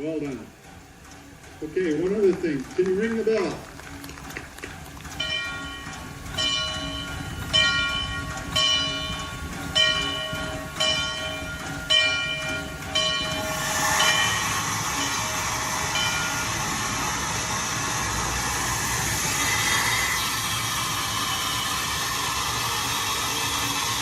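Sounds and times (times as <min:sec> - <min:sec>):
steam hissing: 0:05.2 - 0:24.0
steam locomotive bell ringing: 0:05.2 - 0:24.0.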